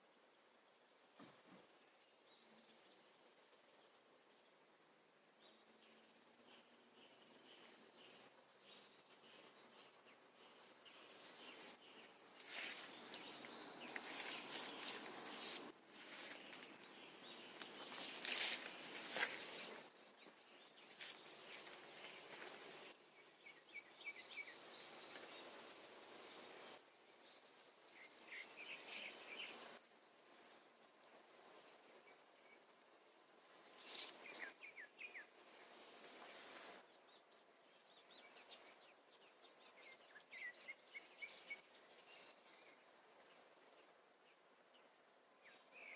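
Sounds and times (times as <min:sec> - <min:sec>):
birds chirping: 0:05.4 - 0:29.9
rustling noise: 0:10.9 - 0:19.9, 0:35.5 - 0:37.0.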